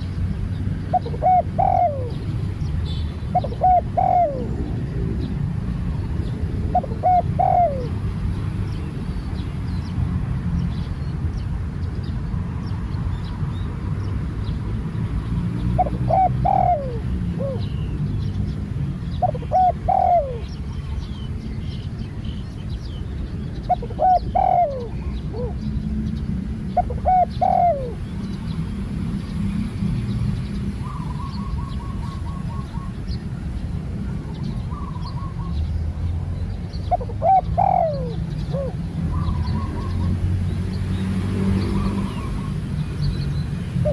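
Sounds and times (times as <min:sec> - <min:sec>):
small birds chirping: 0:00.0 - 0:43.9
dove cooing: 0:00.8 - 0:05.4, 0:06.2 - 0:08.0, 0:15.8 - 0:17.8, 0:19.2 - 0:20.6, 0:23.6 - 0:25.7, 0:26.8 - 0:28.1, 0:30.8 - 0:33.0, 0:34.1 - 0:35.6, 0:36.8 - 0:40.2.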